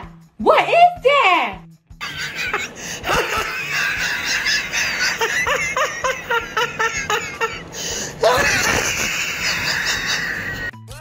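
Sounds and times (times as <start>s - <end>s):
person laughing: 2.0s - 10.8s.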